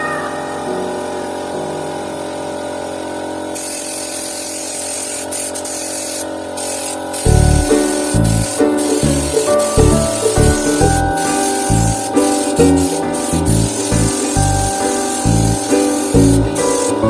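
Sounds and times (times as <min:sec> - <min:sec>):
mechanical whine: 0:00.0 - 0:17.0
paint spray hissing: 0:03.5 - 0:17.0.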